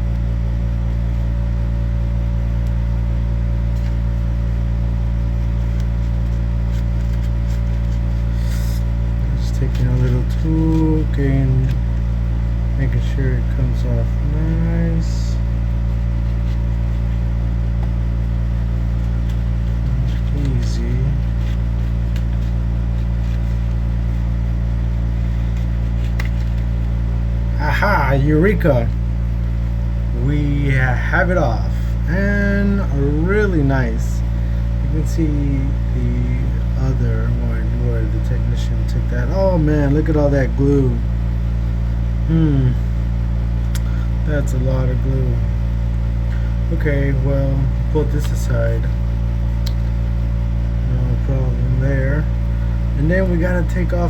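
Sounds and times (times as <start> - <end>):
low electrical hum: 0.0 - 54.0.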